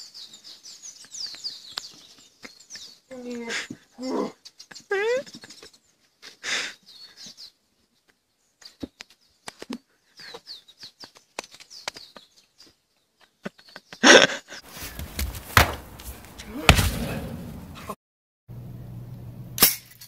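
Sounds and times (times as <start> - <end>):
small birds chirping: 0.0 - 16.6
crash-like burst: 16.6 - 17.9.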